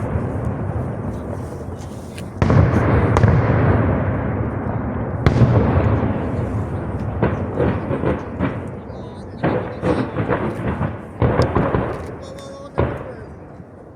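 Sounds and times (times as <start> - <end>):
fireworks booming with echo: 0.0 - 13.9
small firework pops: 5.2 - 13.3.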